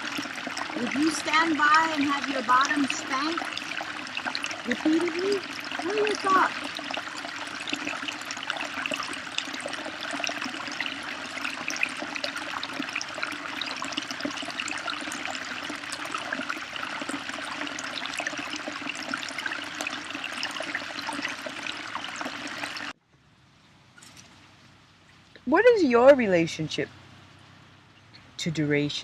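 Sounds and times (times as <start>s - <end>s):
water splashing and trickling: 0.0s - 23.0s.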